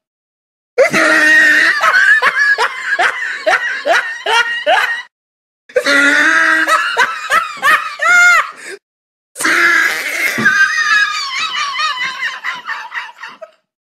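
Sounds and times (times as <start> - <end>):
person laughing: 0.8 - 5.1, 6.3 - 8.8, 10.2 - 13.6.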